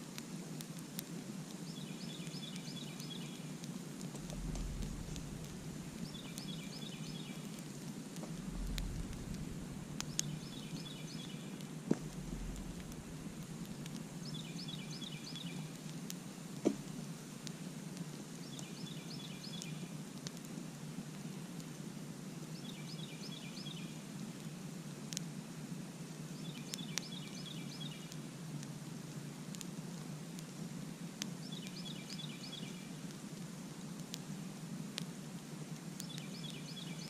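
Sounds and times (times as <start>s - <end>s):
campfire burning: 0.0s - 37.0s
sharp crackling pops: 0.1s - 20.6s, 35.8s - 37.0s
bird chirping: 4.2s - 7.5s, 8.3s - 15.7s.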